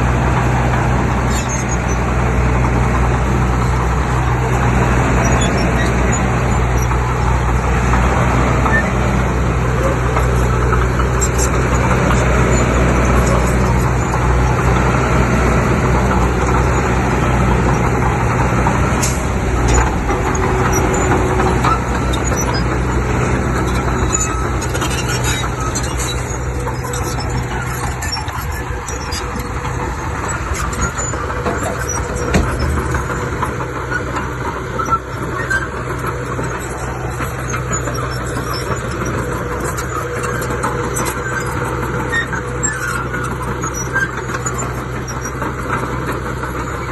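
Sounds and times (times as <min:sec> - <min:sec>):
heavy diesel machinery drone: 0:00.0 - 0:46.9
small knocks: 0:31.0 - 0:34.3.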